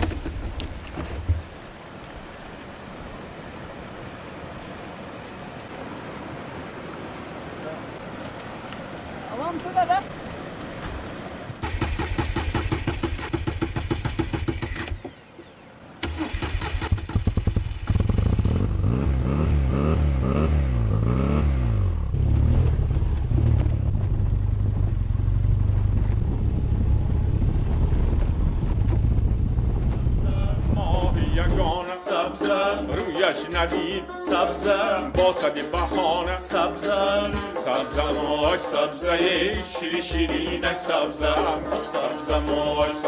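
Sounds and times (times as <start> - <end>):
motorcycle engine starting and revving: 11.6 - 31.8.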